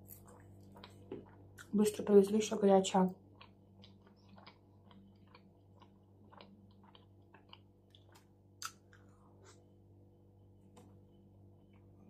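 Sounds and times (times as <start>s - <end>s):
close-up chewing: 0.0s - 1.8s, 3.2s - 9.1s.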